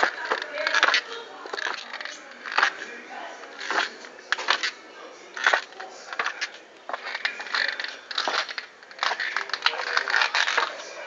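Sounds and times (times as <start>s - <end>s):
shoes crunching and clicking: 0.0s - 11.0s.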